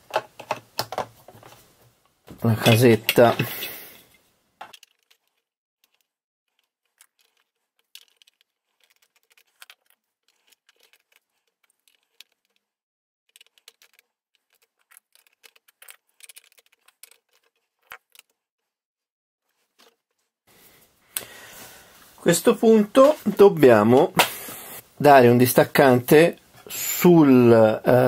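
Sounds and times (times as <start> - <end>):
plastic bricks clicking together: 13.3 - 18.3.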